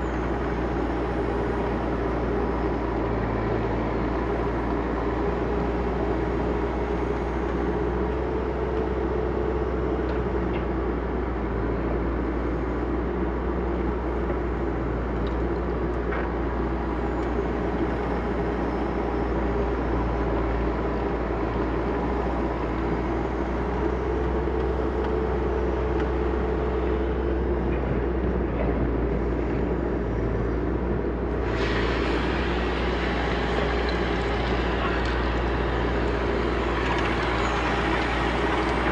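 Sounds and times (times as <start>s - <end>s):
backhoe diesel engine digging: 13.2s - 38.9s.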